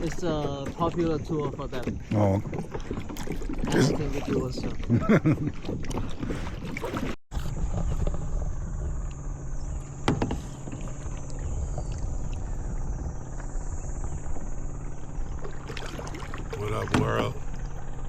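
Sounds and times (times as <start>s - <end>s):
steady low rumble: 7.3s - 18.0s.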